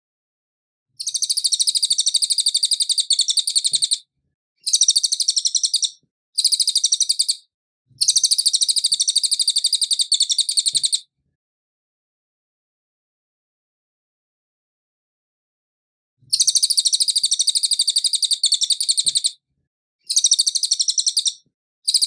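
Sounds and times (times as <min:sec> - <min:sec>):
bird chattering trill: 0:01.0 - 0:04.0, 0:04.6 - 0:07.4, 0:08.0 - 0:11.0, 0:16.3 - 0:19.3, 0:20.1 - 0:22.0.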